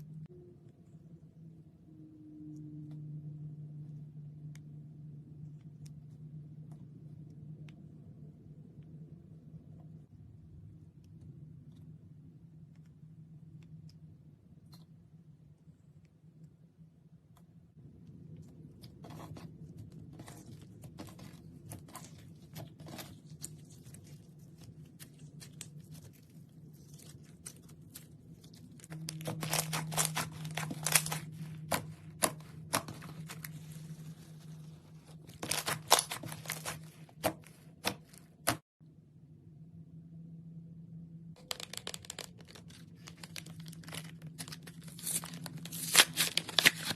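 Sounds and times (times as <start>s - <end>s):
slime crackling and tearing: 20.1s - 37.9s, 41.5s - 46.9s.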